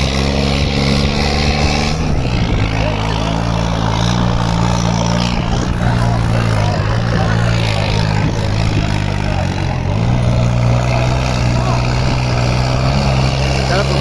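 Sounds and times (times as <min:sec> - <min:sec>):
background voices: 0:00.0 - 0:14.0
tractor diesel engine running: 0:00.0 - 0:14.0.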